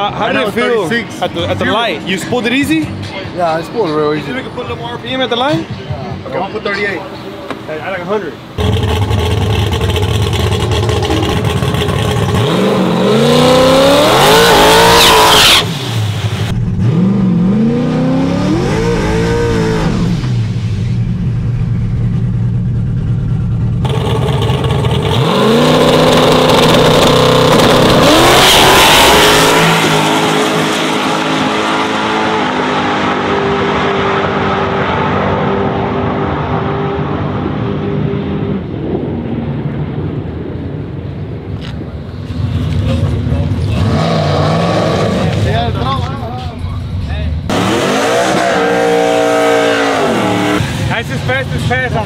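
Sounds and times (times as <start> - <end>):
truck engine revving at full throttle: 8.6 - 39.4, 42.3 - 46.2, 47.4 - 52.0.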